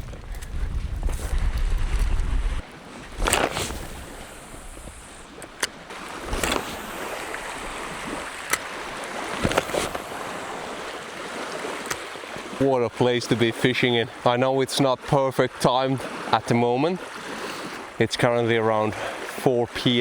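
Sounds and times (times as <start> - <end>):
wind buffeting microphone: 0.0 - 12.7
water lapping at shore: 0.0 - 20.0
short sharp splashes: 2.6 - 12.7.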